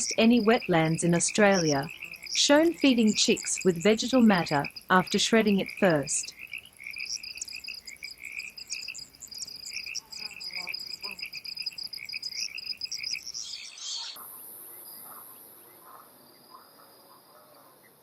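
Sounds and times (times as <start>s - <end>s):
high insect-like buzz: 0.0s - 13.8s
wetland creatures calling: 0.0s - 14.2s
faint chirps: 0.0s - 17.7s.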